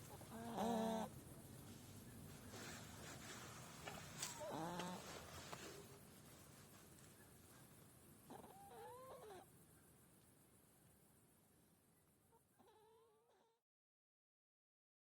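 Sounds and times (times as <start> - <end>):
hedgehog whimpering calls: 0.2 - 1.1, 8.3 - 9.4.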